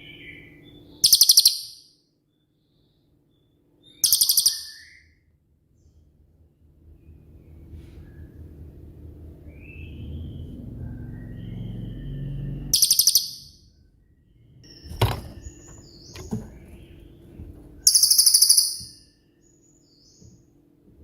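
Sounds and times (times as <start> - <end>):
songbird rattling trills: 14.7 - 19.0.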